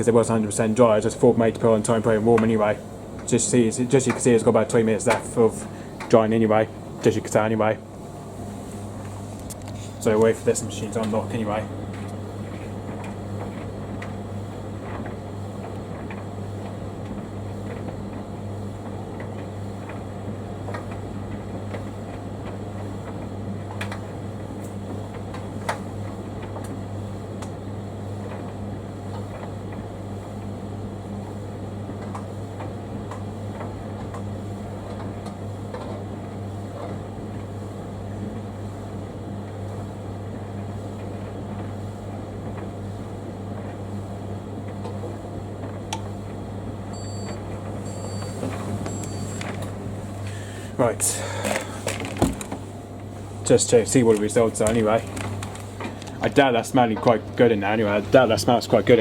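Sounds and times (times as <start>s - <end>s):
tumble dryer motor hum: 0.0s - 59.0s.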